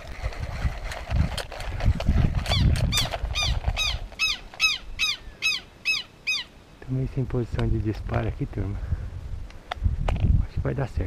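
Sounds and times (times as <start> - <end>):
bird calling harsh note: 2.5 - 6.7.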